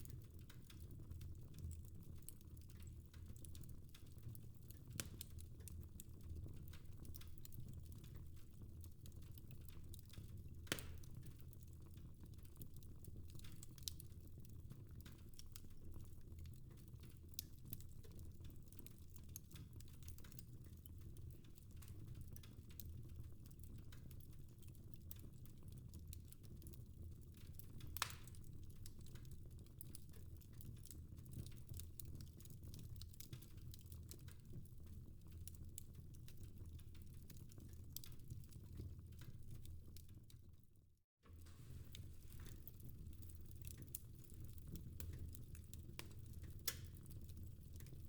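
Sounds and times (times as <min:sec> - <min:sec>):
fire crackling: 0:00.0 - 0:23.7, 0:41.4 - 0:48.0.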